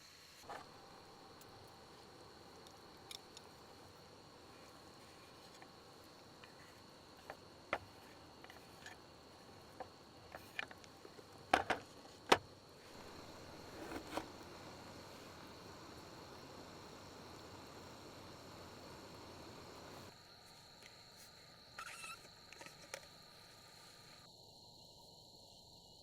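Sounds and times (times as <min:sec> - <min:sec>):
high insect drone: 0:00.0 - 0:26.0
objects being handled: 0:04.5 - 0:14.4.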